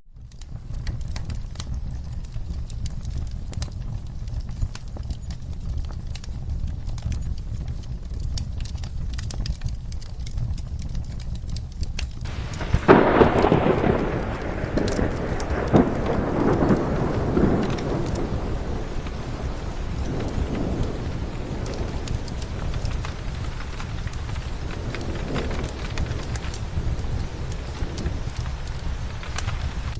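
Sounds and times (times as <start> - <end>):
fireplace fire crackling: 0.0 - 29.9
steady rain: 0.1 - 29.9
thunder clap rolling: 12.2 - 29.9.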